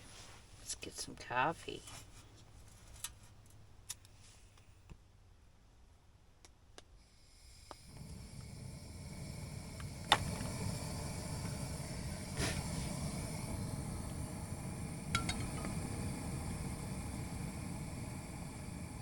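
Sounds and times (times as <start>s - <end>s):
camp stove burning: 7.0s - 19.0s.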